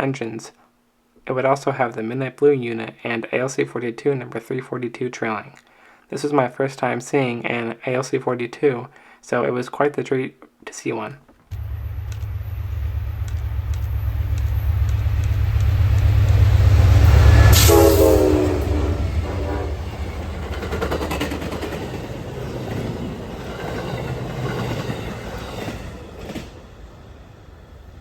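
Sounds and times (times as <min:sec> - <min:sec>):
train horn blast: 0:11.5 - 0:21.0
diesel locomotives rumbling: 0:11.5 - 0:28.0
wheels clicking over rail joints: 0:20.0 - 0:26.6.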